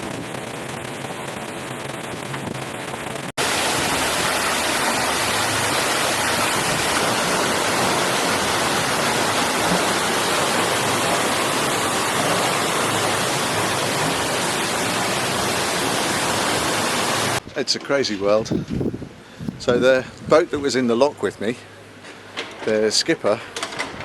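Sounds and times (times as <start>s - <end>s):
water rushing through sluices: 0.0s - 17.4s.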